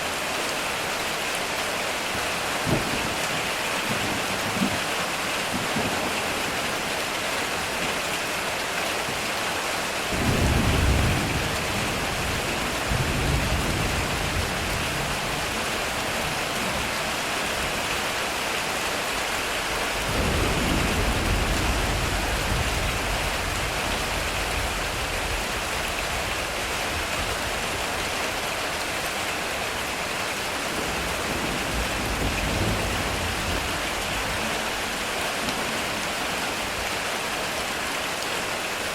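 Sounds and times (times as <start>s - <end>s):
heavy rain on a metal roof: 0.0s - 38.9s
thunder rumbling: 10.1s - 16.9s, 19.9s - 27.9s, 30.7s - 36.2s.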